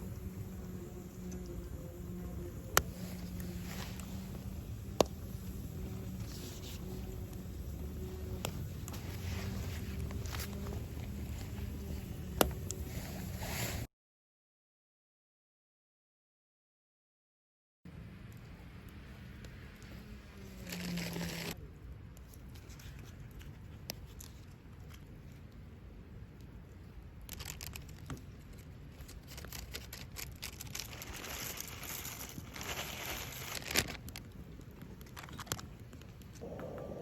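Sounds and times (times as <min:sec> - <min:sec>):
crinkling and rustling: 0:02.6 - 0:13.9, 0:20.5 - 0:21.6, 0:27.2 - 0:36.6.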